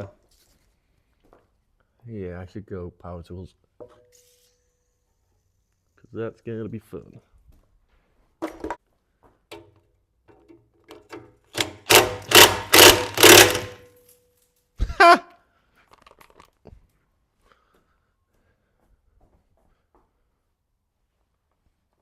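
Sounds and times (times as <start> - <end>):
power tool bursts on bolts: 11.5 - 14.0.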